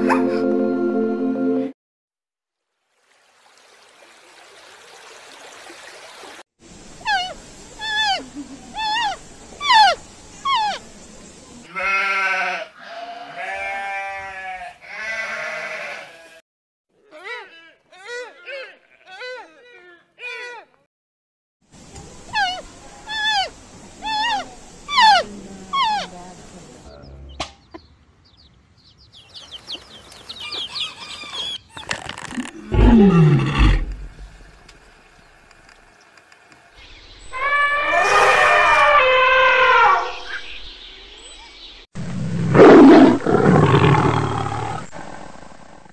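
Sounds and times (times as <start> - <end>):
wavering bleats: 11.7 - 16.4, 17.0 - 20.7
loud low animal call: 32.6 - 34.4, 37.2 - 40.4.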